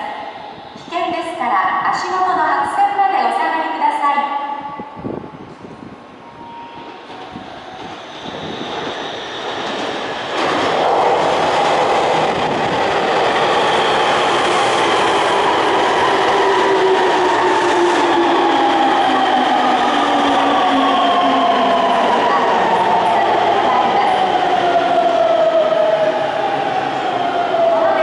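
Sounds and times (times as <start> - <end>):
electric train passing: 6.1 - 28.0.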